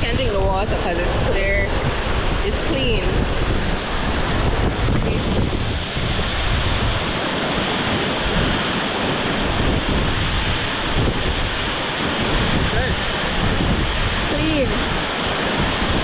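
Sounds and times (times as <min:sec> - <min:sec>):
waterfall rushing: 0:13.0 - 0:16.0.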